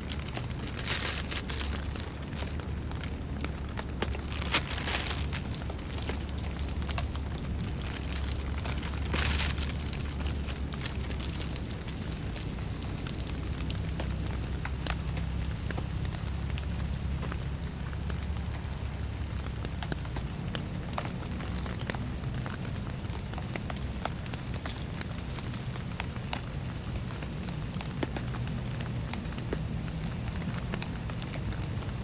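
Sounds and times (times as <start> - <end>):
raindrops striking a surface: 0.0 - 32.0
steady rain: 0.0 - 32.0.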